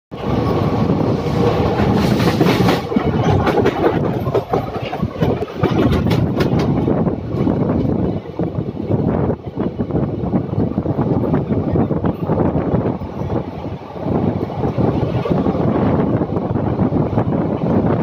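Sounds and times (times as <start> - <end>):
clickety-clack of wheels on track: 0.1 - 18.0
train wheels rumbling on rails: 0.1 - 18.0.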